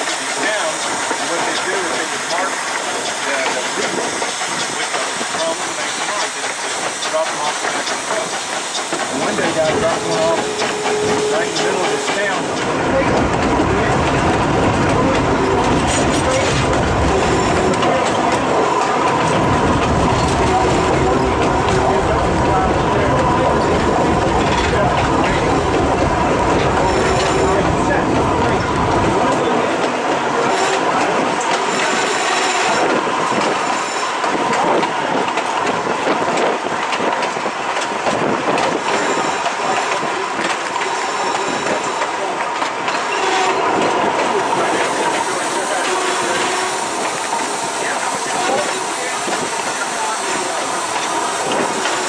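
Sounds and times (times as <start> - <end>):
train wheels rumbling on rails: 0.0 - 52.0
thin high wheel squeal: 8.8 - 12.6.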